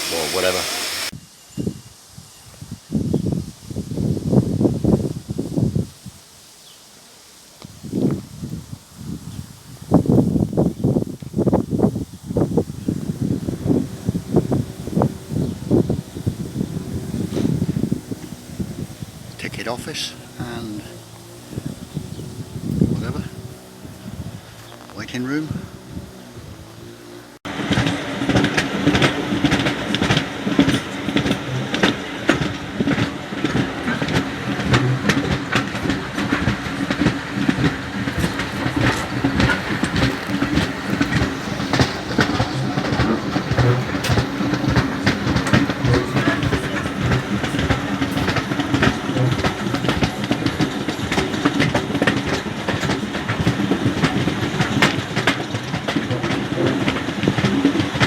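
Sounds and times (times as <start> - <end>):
train rumbling along track: 0.0 - 1.9, 2.5 - 6.2, 7.4 - 58.0
wheels clattering over rail joints: 7.8 - 58.0.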